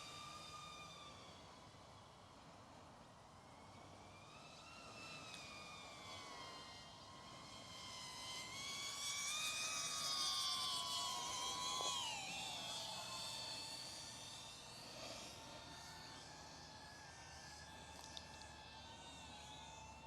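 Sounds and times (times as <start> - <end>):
drone motors whining: 4.4 - 20.0.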